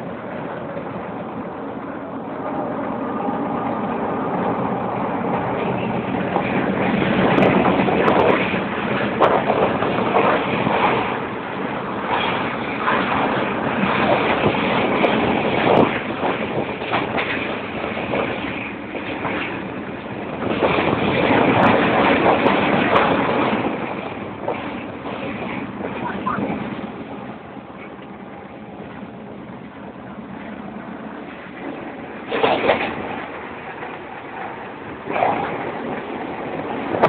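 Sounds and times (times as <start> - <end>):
train rumble and rush: 0.0 - 37.0
wheels clacking on track: 0.0 - 37.0.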